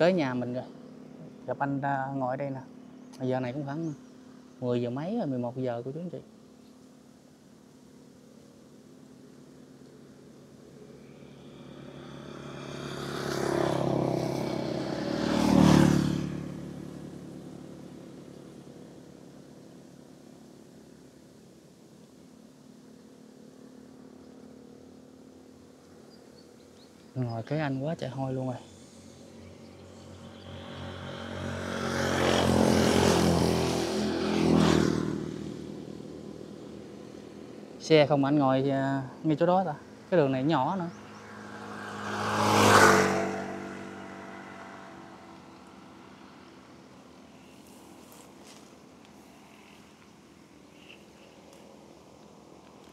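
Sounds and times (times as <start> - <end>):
motor vehicles passing close: 0.0 - 52.9.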